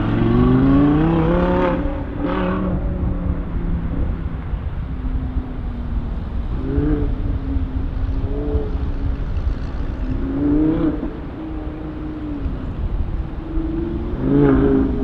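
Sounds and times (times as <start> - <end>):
car engine accelerating: 0.0 - 4.5.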